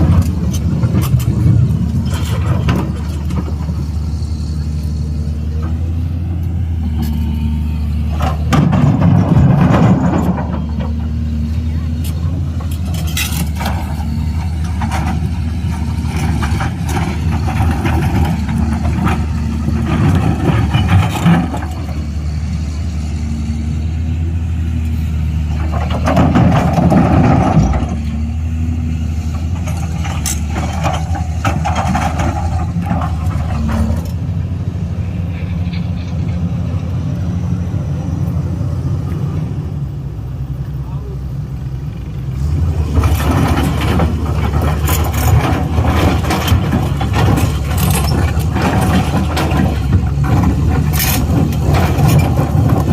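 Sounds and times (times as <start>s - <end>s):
excavator diesel engine running: 0.0s - 52.9s
metal clanks: 8.1s - 11.2s, 12.0s - 21.9s, 42.9s - 52.9s.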